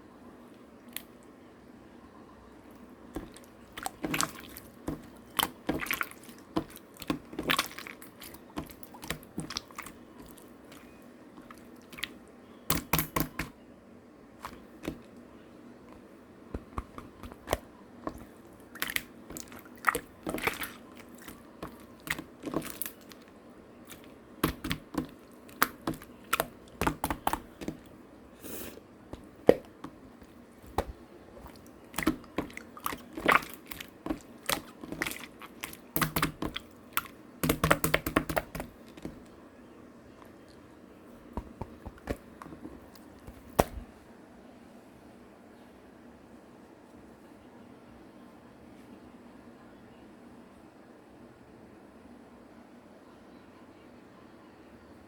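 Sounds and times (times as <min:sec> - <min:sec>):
slime squelching by hand: 0:02.8 - 0:13.6, 0:14.4 - 0:39.4, 0:40.1 - 0:43.9.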